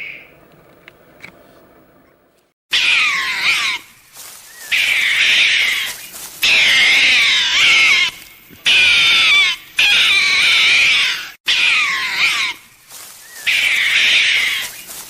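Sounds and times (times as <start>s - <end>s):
animal high-pitched wavering cries: 2.7s - 3.9s, 4.5s - 12.6s, 13.2s - 14.9s.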